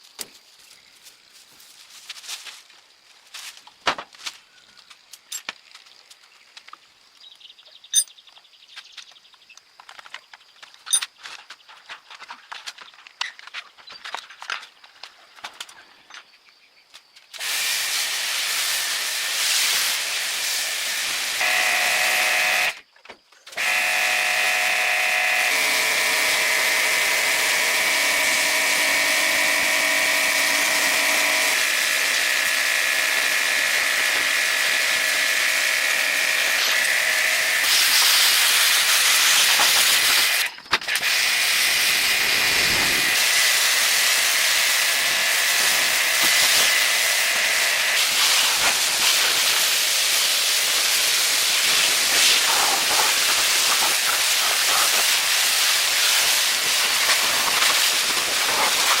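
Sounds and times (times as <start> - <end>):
loud steady hiss: 17.4 - 22.8, 23.6 - 59.0
high machine whine: 18.8 - 22.8, 23.6 - 52.5.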